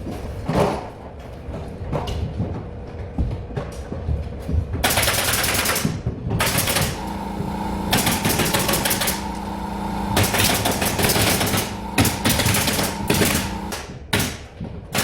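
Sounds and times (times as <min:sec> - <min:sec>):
machine hum: 0:06.4 - 0:13.9
power tool clicking: 0:06.4 - 0:13.9.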